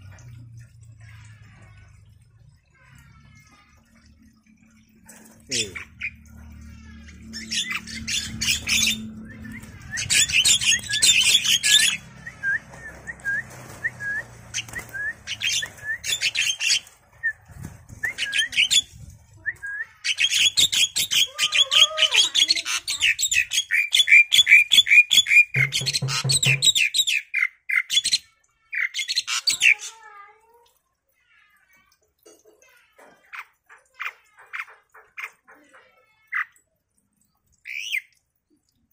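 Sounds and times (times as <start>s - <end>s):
bird chirping rapidly: 7.4s - 16.9s.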